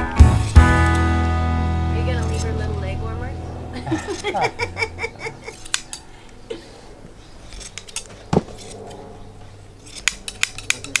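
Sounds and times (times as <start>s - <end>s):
shears snipping wool: 2.1s - 6.4s, 7.3s - 11.0s.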